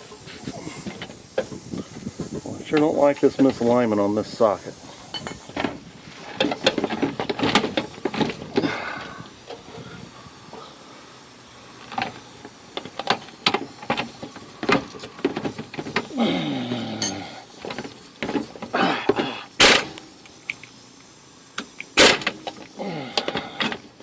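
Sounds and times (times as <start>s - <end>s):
socket and wrench clinking on metal: 5.2s - 5.5s.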